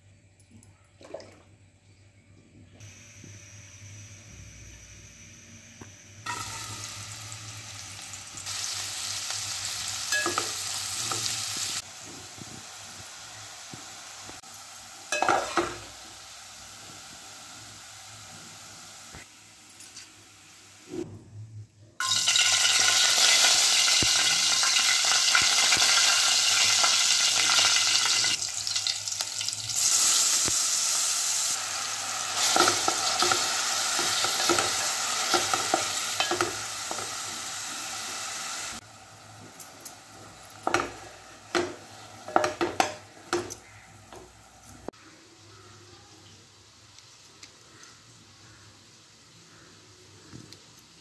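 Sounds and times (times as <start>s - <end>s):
tomatoes sizzling in hot oil: 2.8s - 21.0s, 22.0s - 44.9s
spoon scraping and knocking pot: 40.5s - 44.2s.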